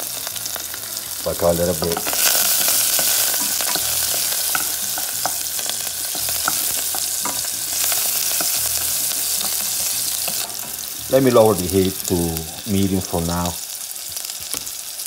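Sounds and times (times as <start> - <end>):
vegetables sizzling in hot oil: 0.0 - 15.0
wooden spoon scraping a pan: 1.7 - 11.6.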